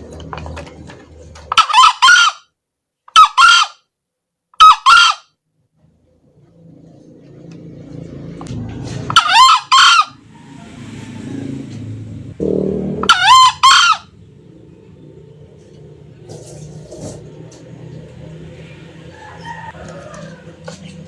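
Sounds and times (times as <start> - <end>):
junglefowl crowing: 1.4 - 2.5, 3.1 - 3.9, 4.6 - 5.4, 8.5 - 11.9, 12.8 - 14.7, 18.2 - 21.0
low rumble: 14.1 - 19.1.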